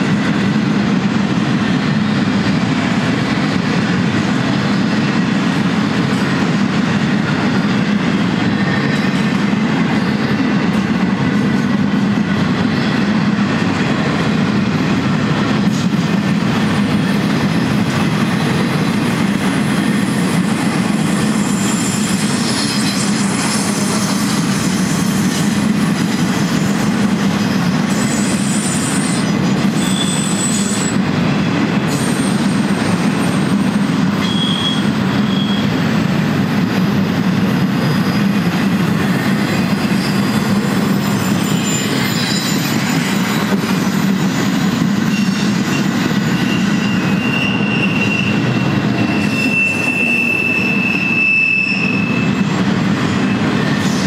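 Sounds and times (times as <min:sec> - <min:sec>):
train wheels rumbling on rail: 0:00.0 - 0:54.0
high-pitched wheel squeals: 0:27.9 - 0:31.0, 0:34.2 - 0:35.7, 0:39.8 - 0:43.6, 0:45.0 - 0:52.5.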